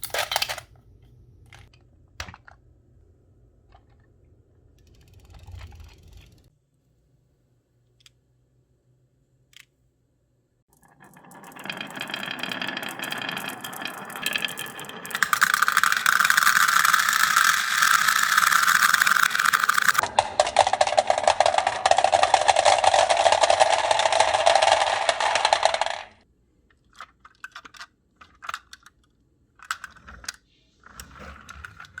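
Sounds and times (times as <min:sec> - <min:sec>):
marbles rolling and clattering: 0:10.7 - 0:26.2.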